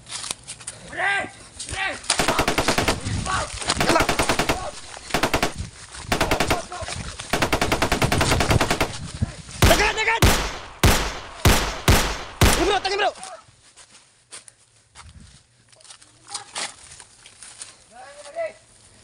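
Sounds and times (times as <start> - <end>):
automatic gunfire bursts: 2.2 - 13.0
single gunshots ringing: 2.2 - 13.0.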